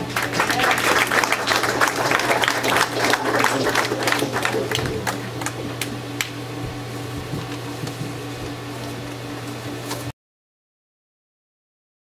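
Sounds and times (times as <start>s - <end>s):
congregation applause: 0.0s - 5.9s
low room hum: 0.0s - 10.1s.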